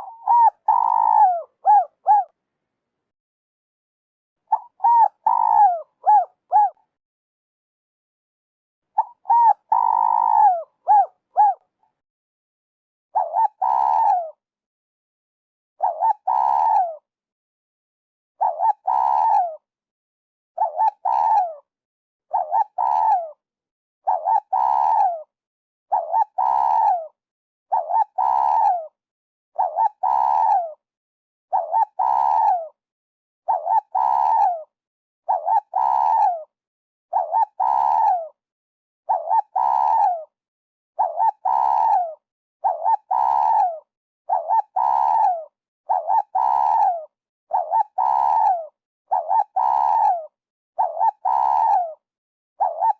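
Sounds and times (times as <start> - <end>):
dove cooing: 0.0 - 2.3, 4.5 - 6.8, 9.0 - 11.6, 13.2 - 14.4, 15.8 - 17.0, 18.4 - 19.6, 20.6 - 21.6, 22.3 - 23.4, 24.1 - 25.2, 25.9 - 28.8, 29.6 - 30.8, 31.5 - 32.7, 33.5 - 34.7, 35.3 - 36.5, 37.1 - 38.4, 39.1 - 40.3, 41.0 - 52.0, 52.6 - 52.9.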